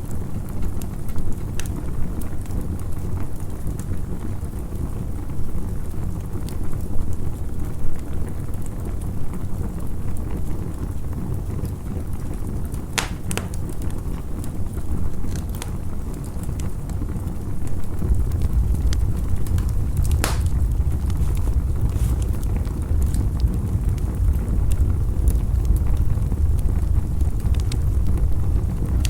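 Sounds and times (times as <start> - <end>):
campfire crackling and popping: 0.0 - 29.0
steady low rumble: 17.1 - 29.0.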